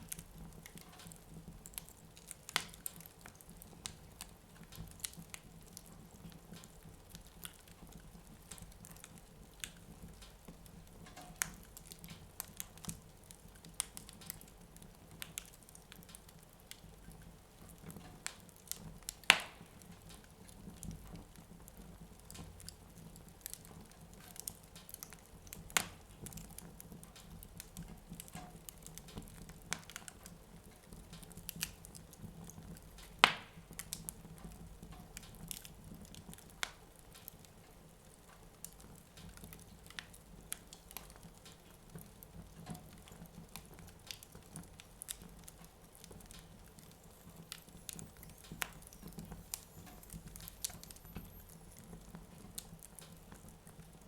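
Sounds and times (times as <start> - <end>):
wood fire crackling: 0.0 - 54.0
sharp fire pops: 18.7 - 19.9.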